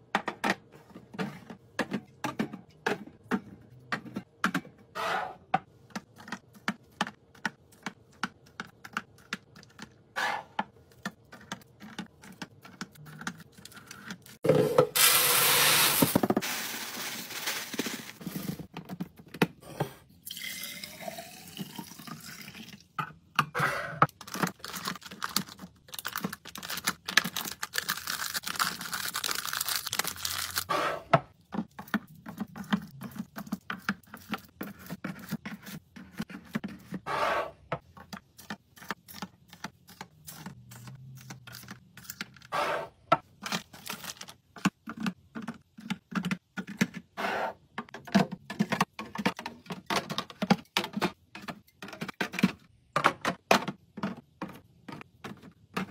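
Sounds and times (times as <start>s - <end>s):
containers clicking and tapping: 43.1s - 47.1s.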